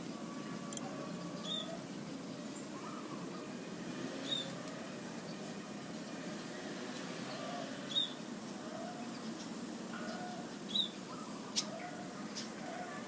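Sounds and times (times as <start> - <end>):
outdoor background noise: 0.0 - 13.0
dove cooing: 7.4 - 7.9, 10.0 - 13.0.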